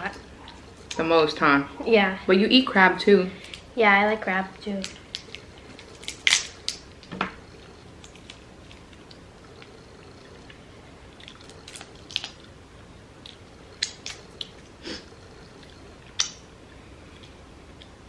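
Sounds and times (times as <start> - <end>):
shells cracking: 4.8 - 7.4
person chewing: 4.9 - 12.5.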